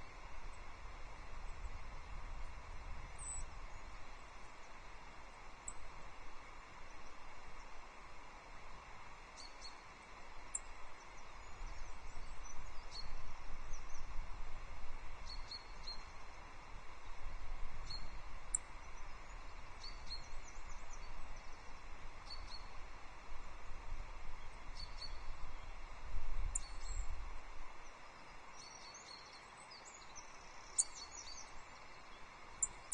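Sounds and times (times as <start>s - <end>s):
wind rumbling on microphone: 0.0s - 4.3s, 16.7s - 27.8s.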